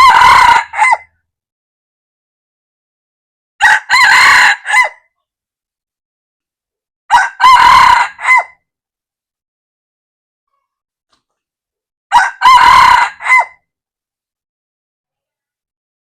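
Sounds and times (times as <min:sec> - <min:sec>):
rooster crowing: 0:00.0 - 0:01.1, 0:03.6 - 0:05.0, 0:07.1 - 0:08.6, 0:12.1 - 0:13.6.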